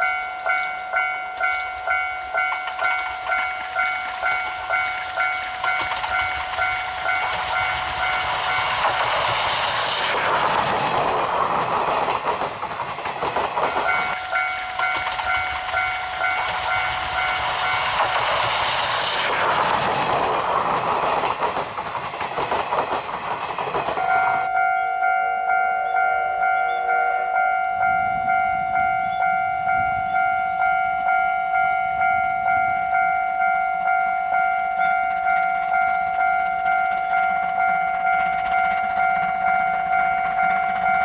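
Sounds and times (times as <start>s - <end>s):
level-crossing alarm ringing: 0.0s - 21.3s, 23.9s - 41.0s
train passing: 0.0s - 41.0s.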